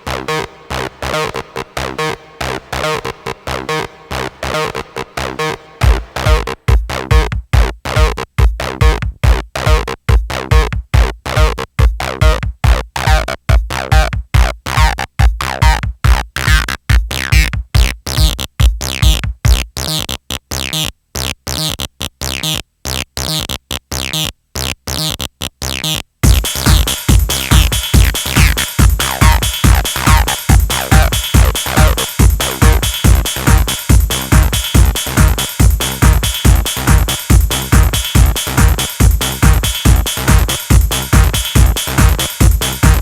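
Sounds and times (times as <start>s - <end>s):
gated synth stabs: 0.0s - 7.3s, 26.2s - 43.0s
hi-hats and noise: 0.0s - 20.1s, 26.2s - 43.0s
steady kick drum: 5.8s - 19.9s, 26.2s - 43.0s.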